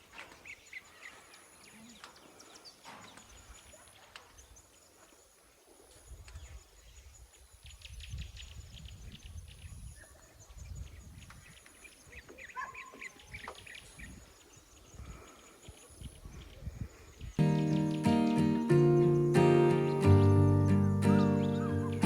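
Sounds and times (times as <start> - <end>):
bird chirps: 17.2 - 22.0.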